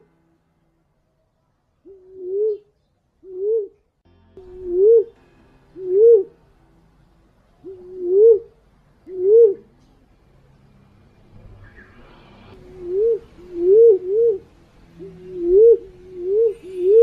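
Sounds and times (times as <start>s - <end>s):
pigeon lure cooing: 1.9s - 3.8s, 7.6s - 8.5s, 9.1s - 9.7s, 12.6s - 14.4s, 15.0s - 17.0s.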